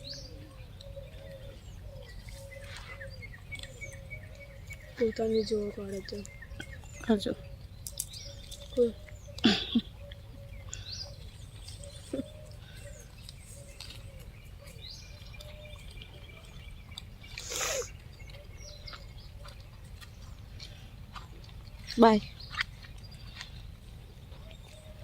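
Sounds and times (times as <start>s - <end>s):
birds chirping and whistling: 0.0s - 25.0s.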